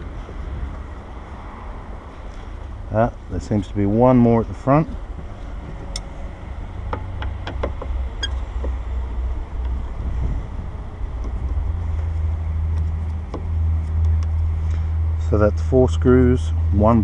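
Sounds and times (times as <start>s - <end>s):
steady low rumble: 0.0s - 17.0s
hand tools clicking and tapping: 6.9s - 8.8s.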